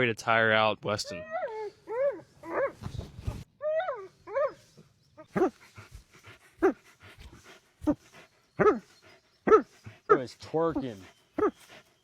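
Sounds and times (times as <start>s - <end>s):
dog whining and yelping: 1.1s - 5.9s, 6.6s - 6.8s, 7.4s - 10.2s, 11.0s - 11.9s.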